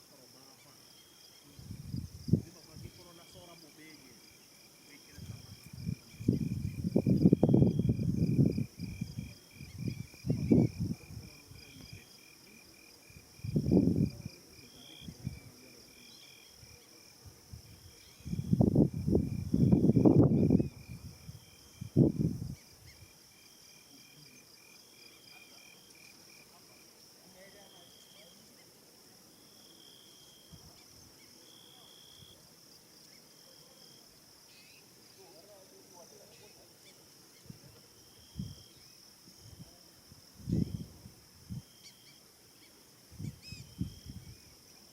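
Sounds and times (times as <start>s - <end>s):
insects chirping: 0.0s - 44.9s
low rumbling gusts: 5.3s - 11.2s
faint chirps: 33.0s - 37.6s, 41.6s - 44.9s.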